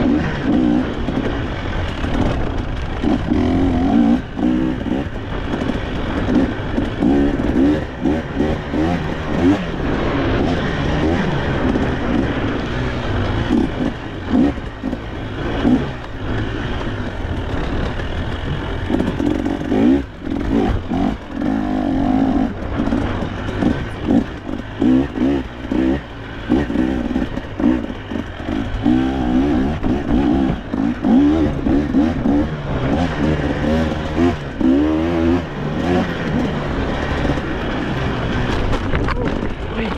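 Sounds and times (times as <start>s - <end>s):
dirt bike engine revving: 0.0s - 39.9s
bike rattling over rocks: 35.4s - 39.9s.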